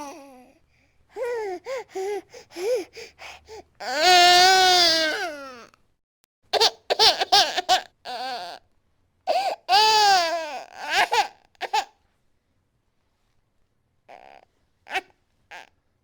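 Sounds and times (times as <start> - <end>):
infant crying: 0.0 - 0.5, 1.2 - 5.7, 7.4 - 8.6, 9.3 - 11.9, 14.1 - 15.7.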